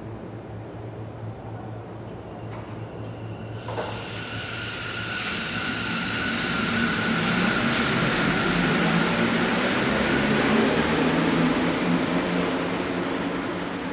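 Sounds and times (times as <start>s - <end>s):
train rolling into station: 0.0s - 13.9s
high whine: 2.5s - 10.5s.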